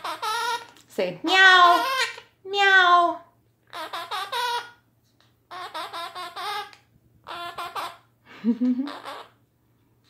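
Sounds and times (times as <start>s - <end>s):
parrot babbling speech-like chatter: 0.0s - 0.7s, 1.3s - 4.8s, 5.5s - 8.1s, 8.8s - 9.4s.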